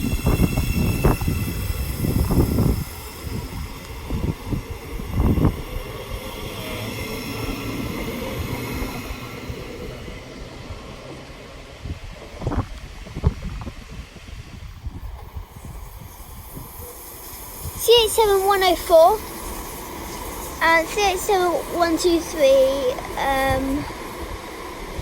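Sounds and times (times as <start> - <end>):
wind thumping on microphone: 0.0 - 6.3, 11.8 - 16.9
train passing: 0.0 - 25.0.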